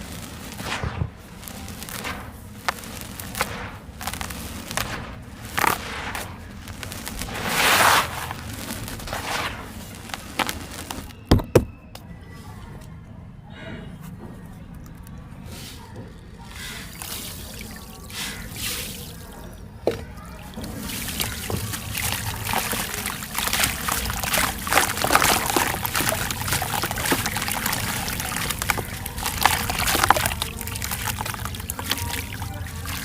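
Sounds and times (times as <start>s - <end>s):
water fizzing into dry sand: 0.0s - 11.2s, 14.8s - 33.0s
soft swishes: 3.4s - 10.9s.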